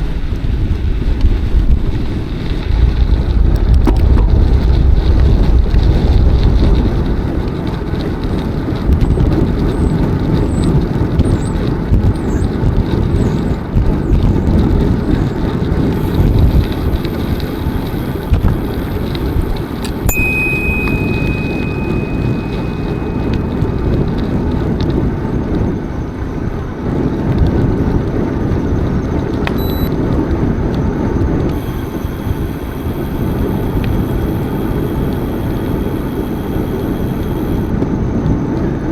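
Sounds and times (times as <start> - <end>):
bicycle tyre rumble: 0.0 - 38.9
wind rushing over microphone: 0.0 - 38.9
faint high chirps: 20.1 - 24.0, 29.6 - 29.9
thin high whistle: 20.1 - 24.1.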